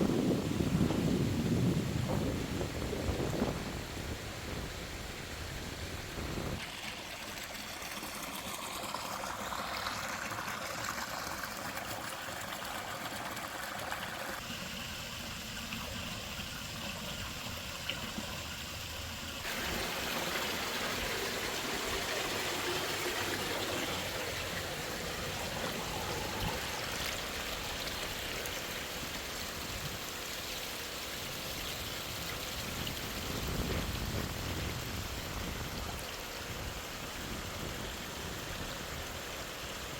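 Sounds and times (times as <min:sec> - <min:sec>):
waterfall rushing and splashing: 0:19.4 - 0:39.9.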